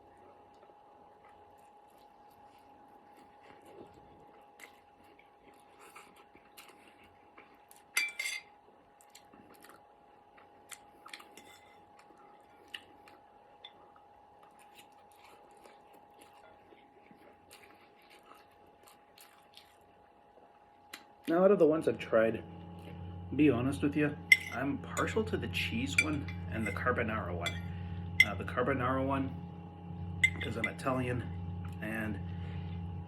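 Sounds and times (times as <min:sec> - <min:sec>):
person chewing noodles: 0:00.0 - 0:21.3
faint steady hum: 0:00.0 - 0:33.0.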